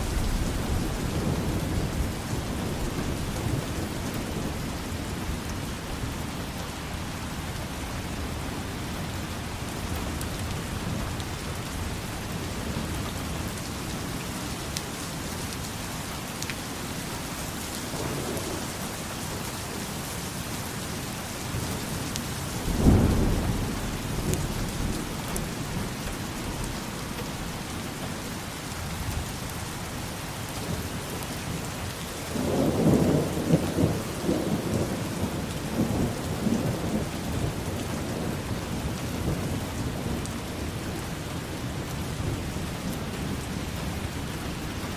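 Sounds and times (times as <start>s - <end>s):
rolling thunder rumble: 0.0s - 5.5s, 17.7s - 27.8s
steady rain: 0.0s - 44.9s
thunder clap: 17.8s - 19.0s, 22.6s - 25.6s.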